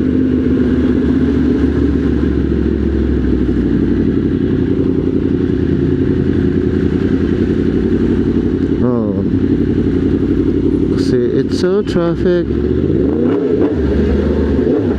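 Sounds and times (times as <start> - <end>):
motorcycle engine running steadily: 0.0 - 14.9.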